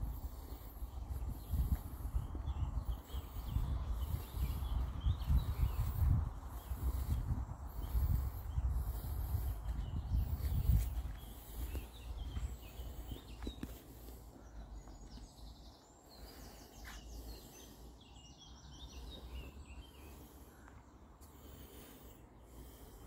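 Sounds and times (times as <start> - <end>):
wind rumble on microphone: 0.0 - 16.8
birds singing: 0.0 - 23.0.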